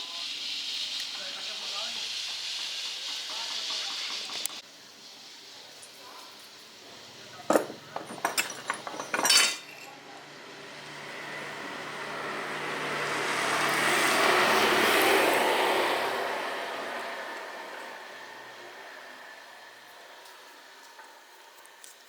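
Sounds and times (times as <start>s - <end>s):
metallic clinks and knocks: 7.5s - 9.9s.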